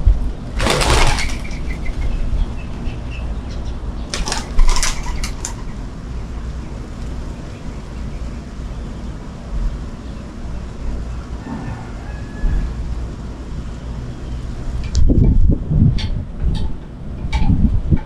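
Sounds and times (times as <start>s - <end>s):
bird wings flapping: 0.5s - 2.2s, 4.1s - 5.8s.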